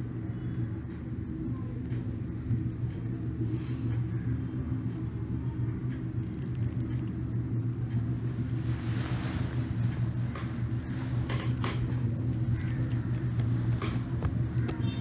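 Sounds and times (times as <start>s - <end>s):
low rumble with hum: 0.0s - 15.0s
faint clicks: 9.7s - 15.0s.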